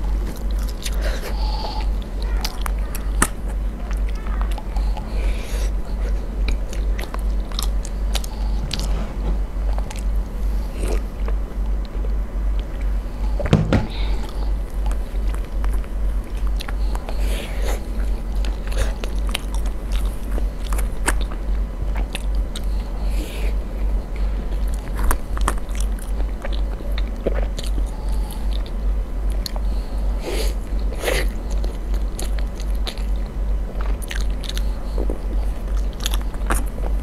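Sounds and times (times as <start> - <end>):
chewing soft food: 0.0 - 13.4, 14.0 - 37.0
low pulsing hum: 0.0 - 37.0
wooden spoon scraping plastic tub: 8.6 - 9.6
loud knock: 13.4 - 14.1.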